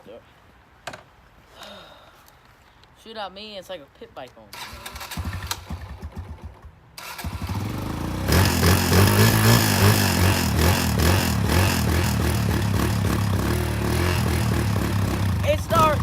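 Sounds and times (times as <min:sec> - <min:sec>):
dirt bike engine kickstarted: 0:04.5 - 0:16.0.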